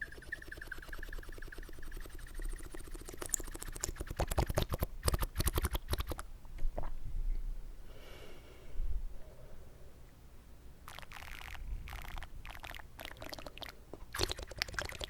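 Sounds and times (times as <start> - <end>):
wet mouth clicks and slurps: 1.3 - 6.2, 10.9 - 15.0.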